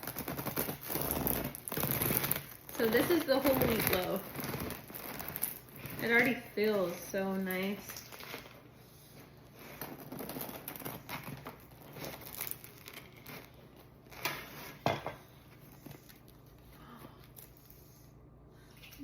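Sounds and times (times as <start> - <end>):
sharp cracks of bread crust: 0.0 - 6.0
bread crust crackling and crunching: 0.0 - 17.9.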